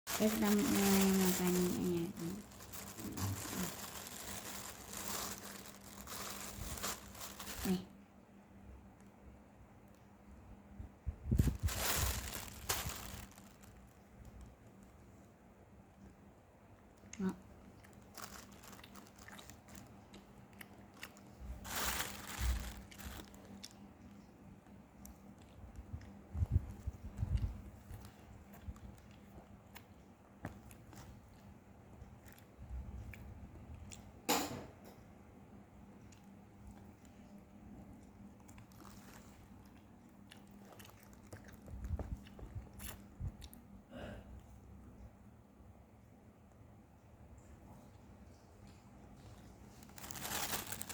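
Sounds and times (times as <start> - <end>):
close-up chewing: 0.1 - 7.8, 16.8 - 34.2, 35.9 - 43.8
crunching bite: 17.7 - 23.8, 38.4 - 43.6.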